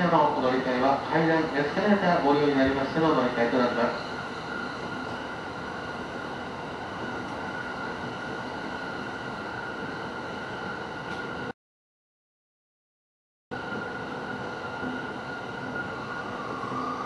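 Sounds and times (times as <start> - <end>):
electric train running noise: 13.6 - 17.0.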